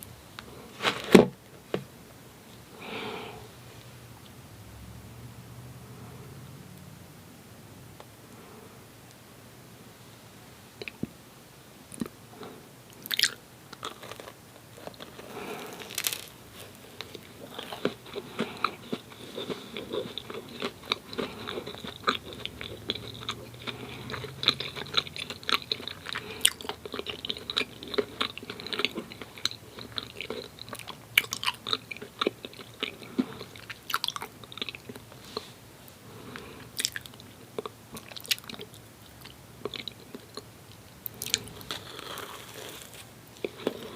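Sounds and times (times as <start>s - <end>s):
person biting and smacking: 13.0s - 16.4s, 41.1s - 43.9s
wet chewing: 13.0s - 35.5s, 36.4s - 43.9s.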